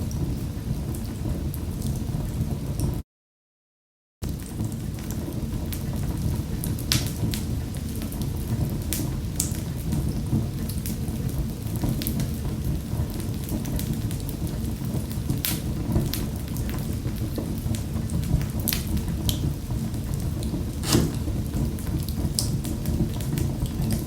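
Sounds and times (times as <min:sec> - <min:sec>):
wood fire crackling: 0:18.2 - 0:24.0.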